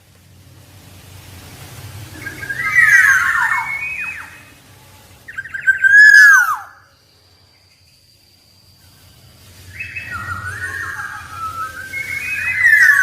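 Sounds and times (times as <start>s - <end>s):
bird singing whistled notes: 2.1s - 4.6s, 5.2s - 13.0s.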